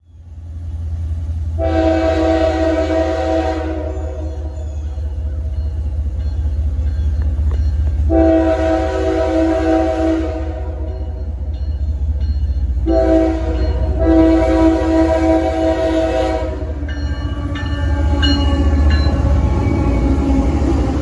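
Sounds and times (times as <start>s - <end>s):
diesel engine rumble: 0.0s - 21.0s
locomotive air horn: 1.6s - 4.6s, 8.0s - 11.0s, 12.8s - 20.2s.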